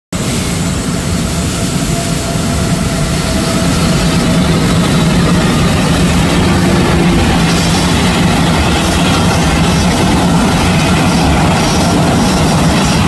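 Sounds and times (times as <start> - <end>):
jet engines roaring: 0.1 - 13.0
faint jet engine whine: 0.2 - 13.0.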